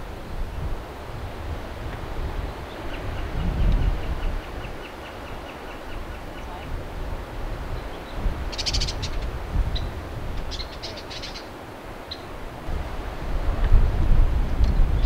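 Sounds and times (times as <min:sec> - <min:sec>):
wind rumble: 0:00.0 - 0:15.0
bird chattering calls: 0:08.5 - 0:11.5.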